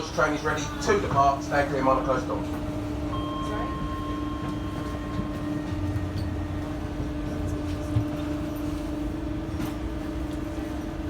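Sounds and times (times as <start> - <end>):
train electrical hum: 0.0 - 11.0.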